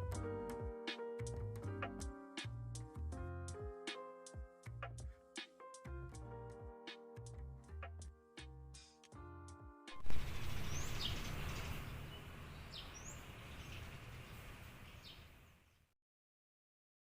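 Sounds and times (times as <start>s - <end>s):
music: 0.0s - 11.6s
bird chirps: 10.0s - 15.8s.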